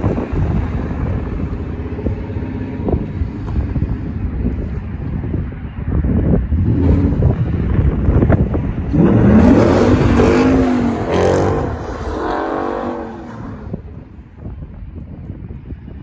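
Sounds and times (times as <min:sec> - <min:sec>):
car engine revving hard: 0:08.9 - 0:13.7.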